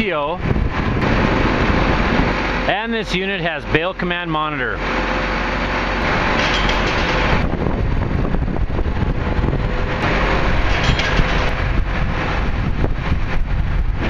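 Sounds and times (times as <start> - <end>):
tractor engine: 0.0 - 14.0
baler clattering: 6.1 - 7.5, 10.0 - 12.1.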